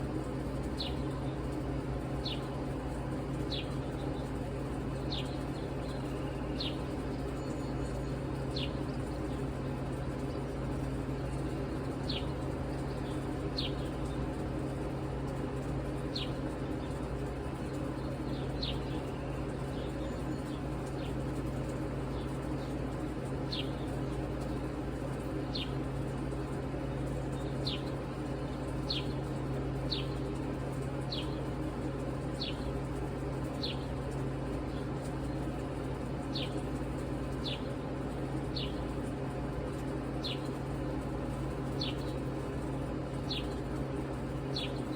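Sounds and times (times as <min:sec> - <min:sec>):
bird chirping: 0:41.7 - 0:42.2, 0:43.3 - 0:43.6, 0:44.5 - 0:44.9.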